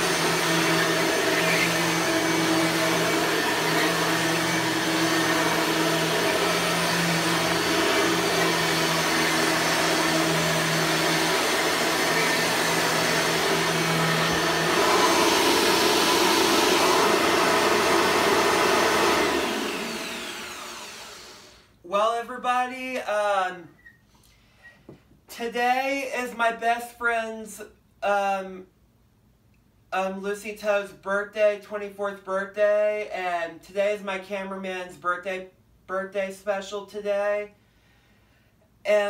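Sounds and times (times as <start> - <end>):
upright vacuum running: 0.0 - 21.6
vacuum motor winding down: 0.0 - 21.6.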